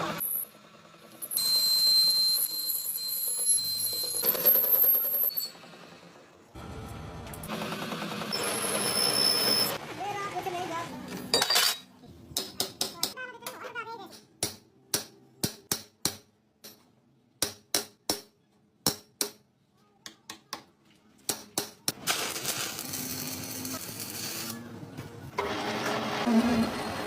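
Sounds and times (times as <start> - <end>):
steady machine noise: 5.6 - 10.2.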